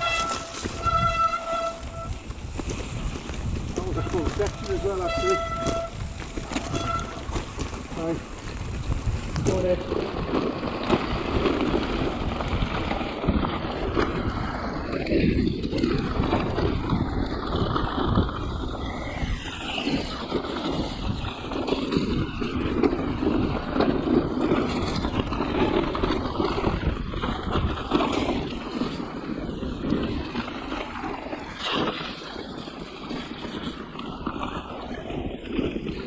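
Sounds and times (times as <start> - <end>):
bike knocks and rattles: 0.0 - 17.8
bike tyre noise: 0.0 - 36.0
wind rushing over microphone: 0.0 - 36.0.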